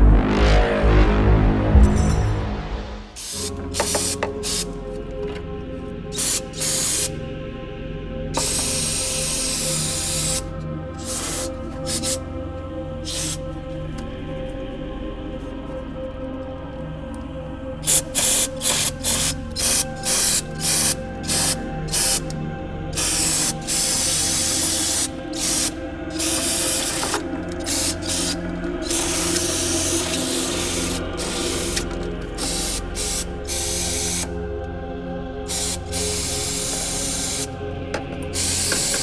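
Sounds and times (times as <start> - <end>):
background music: 0.0 - 39.0
aerosol spraying: 3.2 - 5.4, 6.1 - 7.2, 8.4 - 12.2, 13.1 - 13.4, 17.8 - 22.4, 23.0 - 34.3, 35.4 - 39.0.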